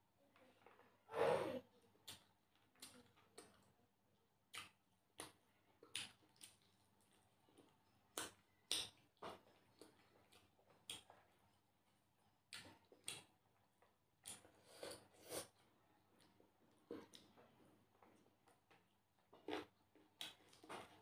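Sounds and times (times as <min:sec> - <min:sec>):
person chewing food: 0:04.4 - 0:21.0.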